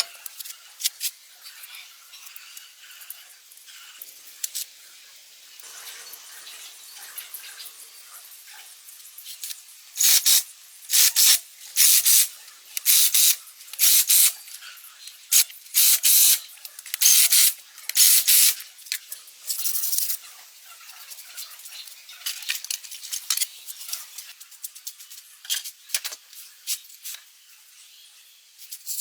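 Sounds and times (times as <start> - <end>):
spraying hiss bursts: 10.0 - 14.3, 15.3 - 16.4, 17.0 - 18.6.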